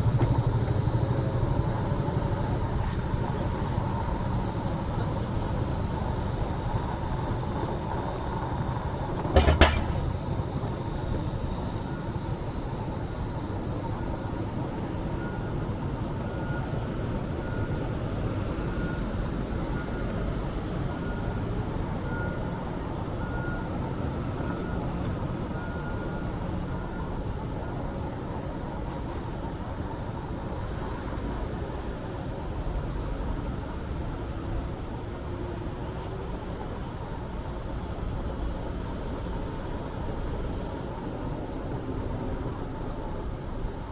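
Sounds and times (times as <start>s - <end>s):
road traffic: 0.0s - 43.9s
rattling knock: 9.2s - 10.1s.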